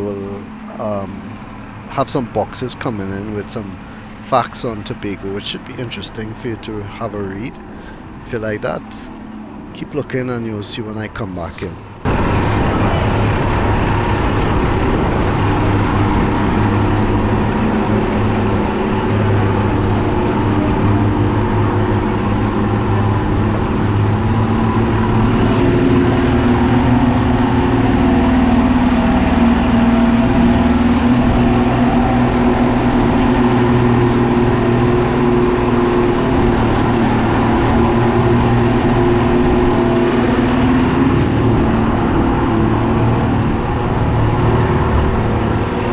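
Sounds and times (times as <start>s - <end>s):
rushing water haze: 11.4s - 12.1s, 33.9s - 34.6s.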